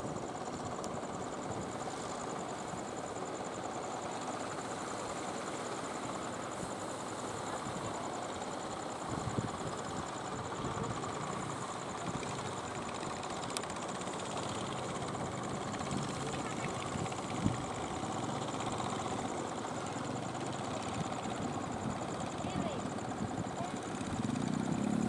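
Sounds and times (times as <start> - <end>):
boat engines running: 5.7 - 25.0.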